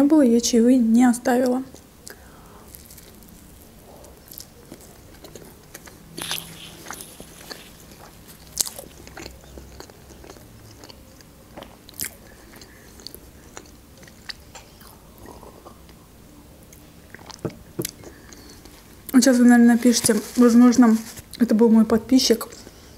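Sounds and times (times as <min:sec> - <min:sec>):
woman chewing bread: 0:01.8 - 0:16.0, 0:16.7 - 0:19.1.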